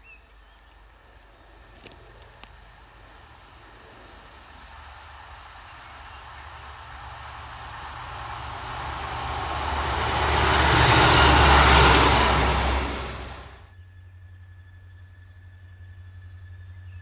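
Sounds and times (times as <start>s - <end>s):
train passing by: 1.0s - 13.7s
diesel engine drone: 1.2s - 13.7s.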